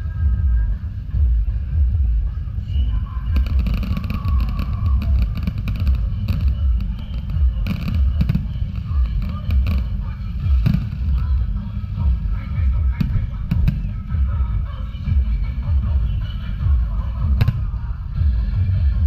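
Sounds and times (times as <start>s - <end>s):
fireworks crackling: 3.2s - 18.1s
fireworks booming: 3.3s - 17.9s.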